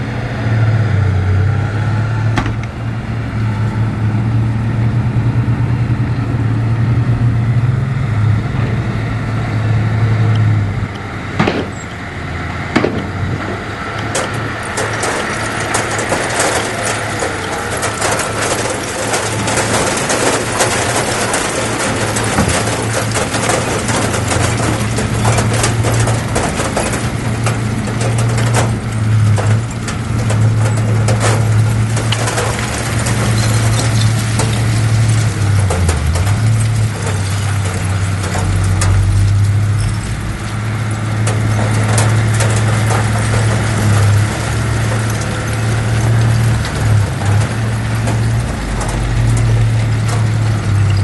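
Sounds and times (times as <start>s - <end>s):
diesel machinery engine: 0.0s - 51.0s
clanking and rattling: 10.3s - 51.0s.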